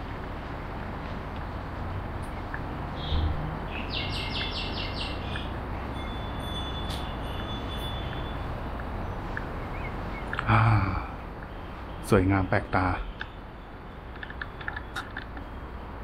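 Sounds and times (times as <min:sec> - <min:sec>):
outdoor background hiss: 0:00.0 - 0:16.0
small bird chirping: 0:02.2 - 0:12.1.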